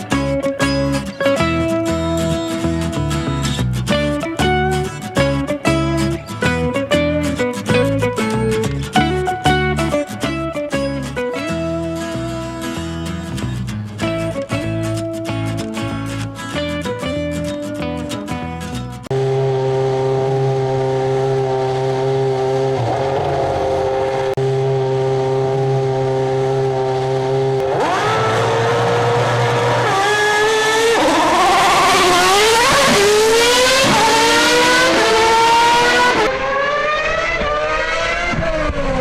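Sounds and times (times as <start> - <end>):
racing car engine idling and revving: 0.0 - 39.0.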